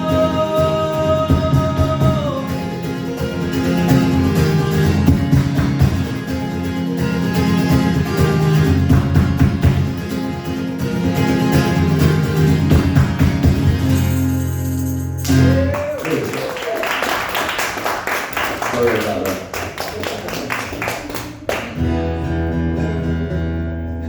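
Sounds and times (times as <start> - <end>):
person singing: 0.0 - 3.2
guitar strumming: 0.0 - 16.0, 21.3 - 24.0.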